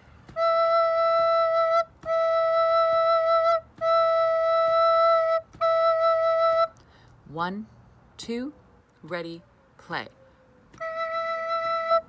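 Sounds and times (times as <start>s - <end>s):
recorder playing held notes: 0.0s - 6.8s, 10.8s - 12.0s.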